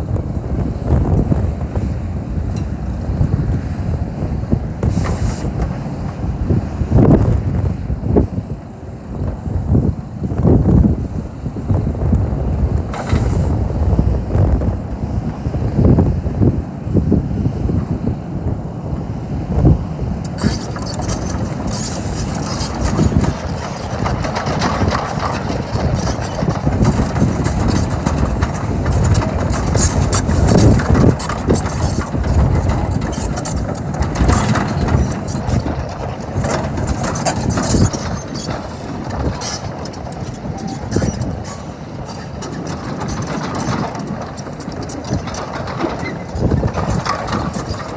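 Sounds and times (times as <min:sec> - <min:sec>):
excavator diesel engine running: 0:00.0 - 0:08.0, 0:17.5 - 0:47.9
metallic clanking and rattling: 0:20.3 - 0:47.9.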